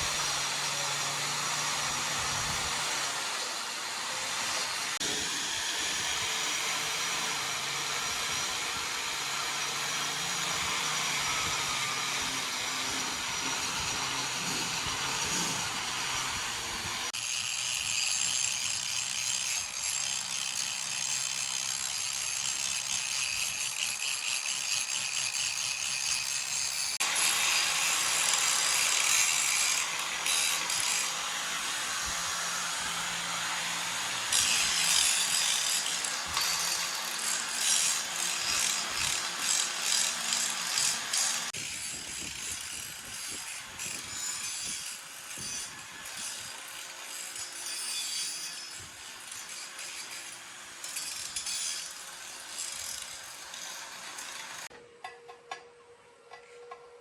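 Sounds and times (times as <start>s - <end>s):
hand tool rasping on hard surface: 9.9s - 54.7s.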